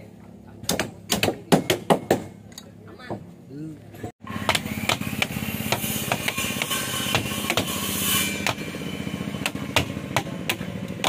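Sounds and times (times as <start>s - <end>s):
small engine running: 8.3s - 11.0s.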